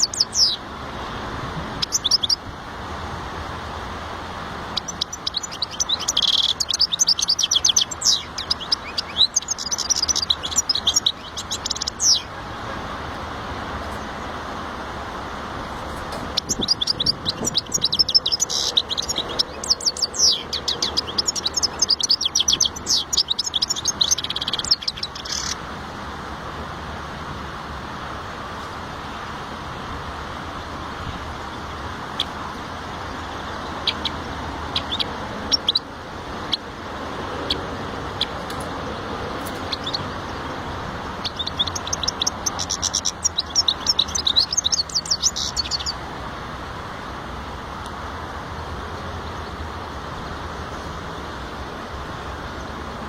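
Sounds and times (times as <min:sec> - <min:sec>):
goldfinch twittering song: 0:00.0 - 0:00.7, 0:01.8 - 0:02.4, 0:04.7 - 0:12.6, 0:16.0 - 0:25.6, 0:31.4 - 0:36.7, 0:37.3 - 0:46.1
steady background noise: 0:00.0 - 0:53.0.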